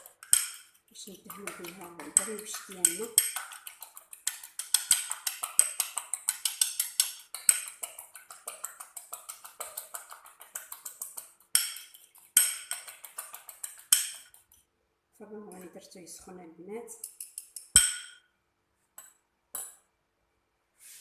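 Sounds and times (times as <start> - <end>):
fork scraping bowl: 0.0 - 14.6.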